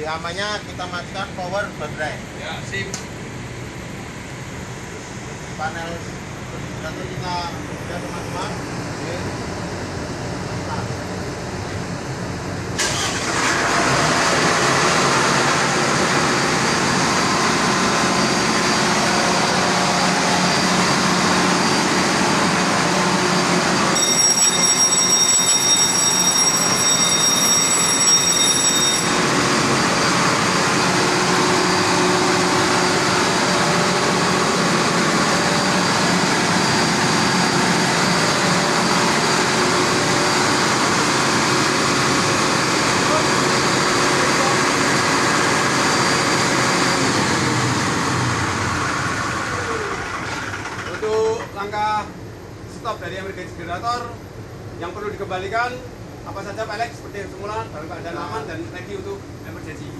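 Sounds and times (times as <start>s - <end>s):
diesel generator running: 0.0s - 59.9s
high steady tones: 23.2s - 40.9s.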